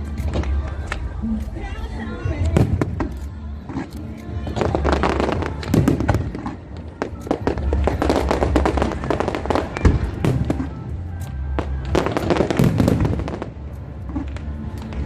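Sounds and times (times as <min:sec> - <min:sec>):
fireworks crackling and banging: 0:00.0 - 0:01.2, 0:02.2 - 0:15.0
music playing: 0:00.0 - 0:15.0.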